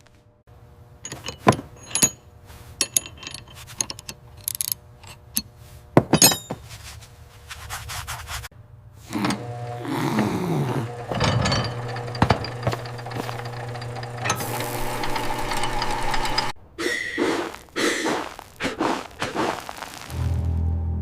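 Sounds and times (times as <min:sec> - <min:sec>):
metal tools knocking and rattling: 0:01.0 - 0:06.6, 0:11.0 - 0:16.5
machine hum: 0:08.6 - 0:17.2.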